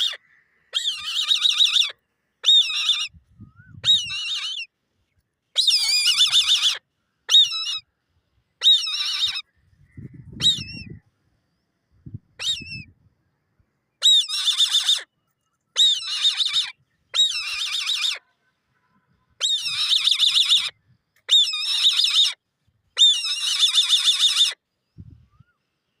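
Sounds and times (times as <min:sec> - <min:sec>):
eagle calling with chattering trills: 0:00.0 - 0:04.7, 0:05.6 - 0:07.9, 0:08.6 - 0:11.0, 0:12.2 - 0:13.0, 0:14.0 - 0:15.1, 0:15.7 - 0:18.2, 0:19.4 - 0:22.4, 0:23.0 - 0:25.5.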